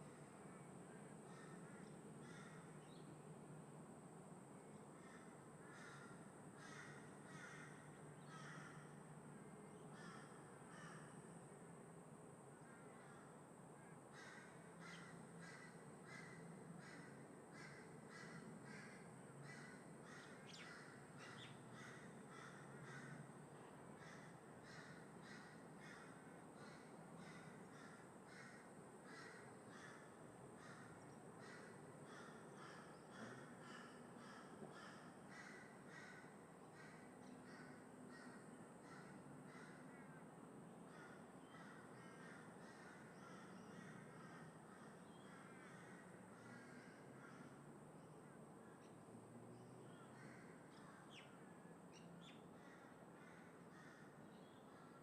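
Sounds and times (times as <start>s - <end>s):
crows cawing: 1.3s - 2.7s, 5.0s - 9.0s, 9.9s - 11.2s, 14.1s - 23.4s, 24.0s - 40.3s, 40.9s - 47.8s, 50.2s - 51.3s, 52.5s - 55.0s
distant traffic hum: 13.3s - 55.0s.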